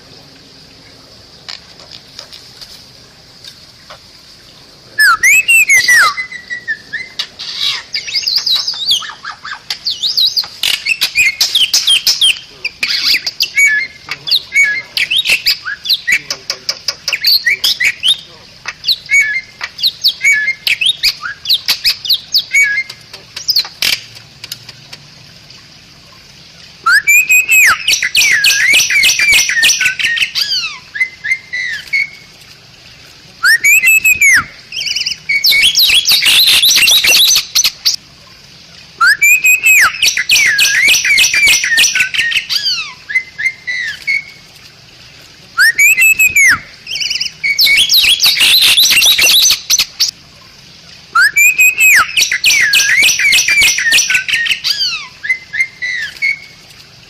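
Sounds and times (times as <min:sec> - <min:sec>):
myna whistling and chattering: 0:05.0 - 0:09.4, 0:26.9 - 0:29.8, 0:33.4 - 0:34.5, 0:39.0 - 0:42.3, 0:45.6 - 0:46.7, 0:51.2 - 0:54.4.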